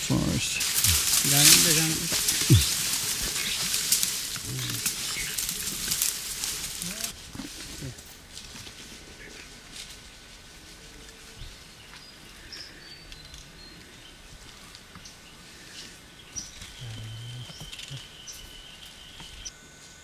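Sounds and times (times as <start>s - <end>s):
high insect tone: 0.0s - 7.2s, 11.0s - 20.0s
forest insects: 0.0s - 20.0s
birds chirping and whistling: 0.2s - 4.0s, 4.6s - 6.1s, 11.1s - 19.5s.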